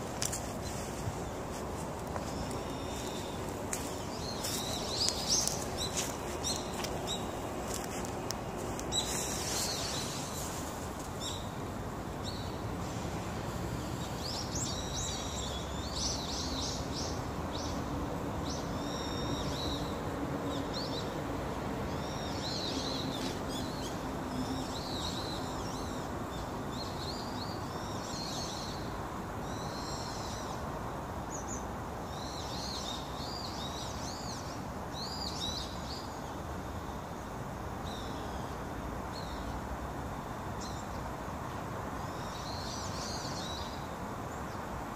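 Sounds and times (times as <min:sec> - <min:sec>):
small birds chirping: 0:00.0 - 0:17.8
outdoor background noise: 0:00.0 - 0:44.9.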